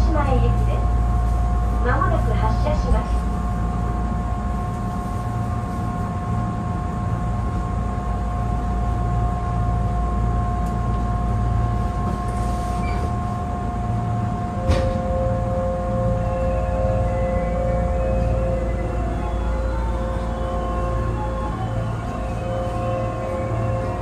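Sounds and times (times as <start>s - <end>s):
low hum: 0.0s - 24.0s
train electrical whine: 0.0s - 24.0s.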